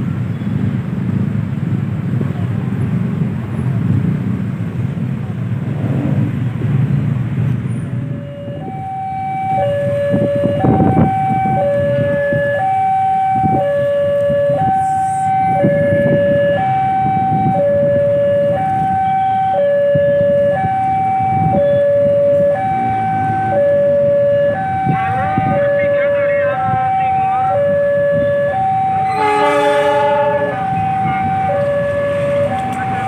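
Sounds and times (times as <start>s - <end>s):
road traffic: 0.0s - 33.0s
two-tone warning siren: 8.0s - 33.0s.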